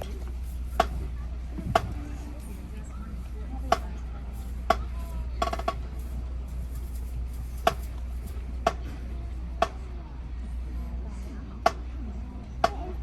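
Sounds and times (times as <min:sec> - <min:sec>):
steady low rumble: 0:00.0 - 0:13.0
sharp percussion clicks: 0:04.7 - 0:06.1.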